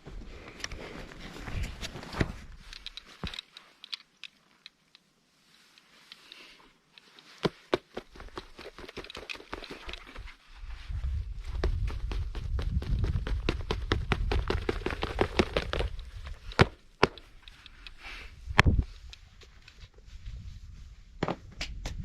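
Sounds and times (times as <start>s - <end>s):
gear rustling: 0.6s - 5.0s.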